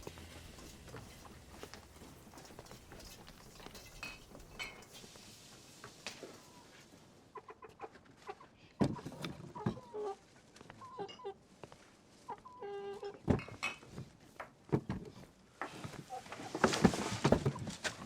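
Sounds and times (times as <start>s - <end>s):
chickens clucking: 6.1s - 10.2s, 10.8s - 11.4s, 12.2s - 13.2s.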